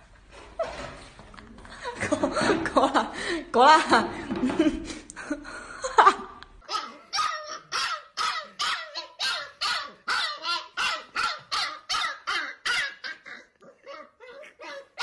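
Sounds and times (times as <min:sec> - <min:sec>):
puppy crying: 0:06.6 - 0:15.0
puppy yipping: 0:06.7 - 0:15.0.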